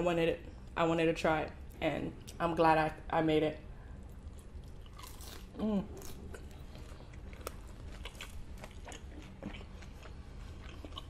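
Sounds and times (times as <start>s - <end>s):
chewing crispy taco: 4.0s - 11.0s.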